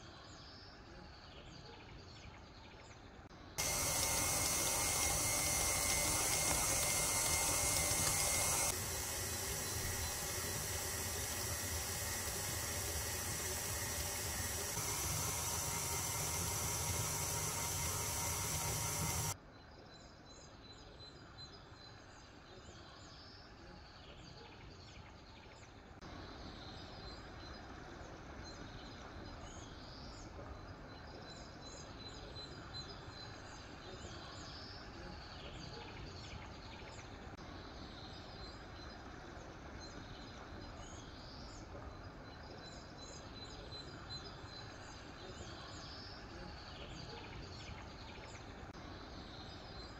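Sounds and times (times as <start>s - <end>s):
stand mixer motor humming: 3.6s - 19.4s.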